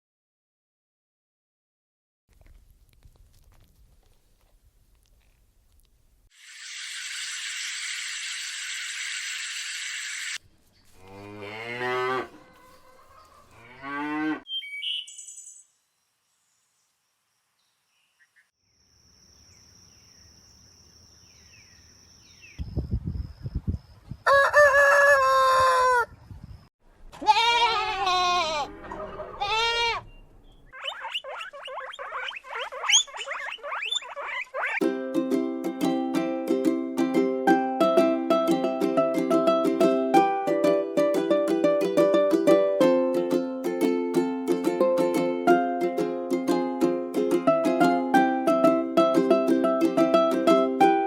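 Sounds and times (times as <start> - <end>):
animal calls: 30.7 - 34.8.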